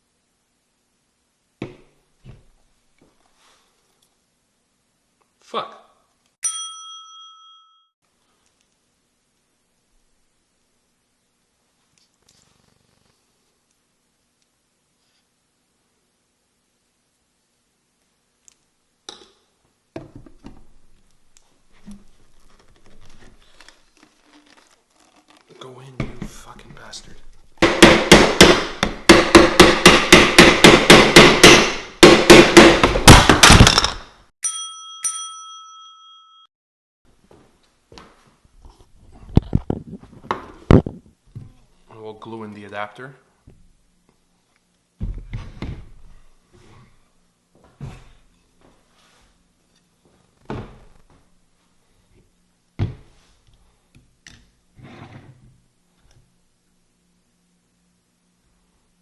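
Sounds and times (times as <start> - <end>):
hard knocks on plastic pipe: 27.6 - 33.7.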